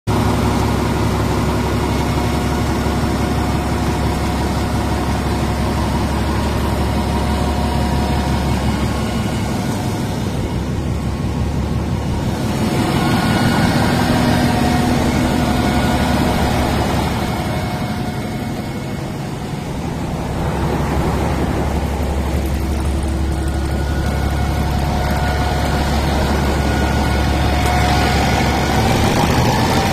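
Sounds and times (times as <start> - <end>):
diesel generator running: 0.1 - 29.9.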